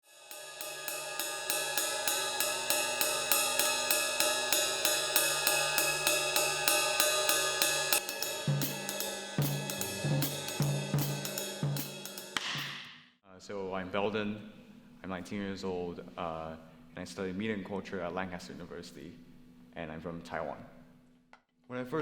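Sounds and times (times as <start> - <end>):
drum kit beat: 0.0 - 12.9
sustained chords: 0.4 - 12.4
bass line: 8.4 - 11.8.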